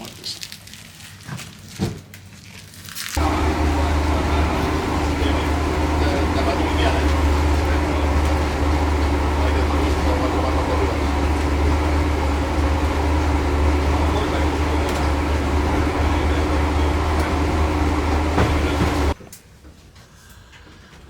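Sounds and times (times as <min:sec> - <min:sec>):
boat engine droning: 0:03.2 - 0:19.2
rushing water noise: 0:03.2 - 0:19.2.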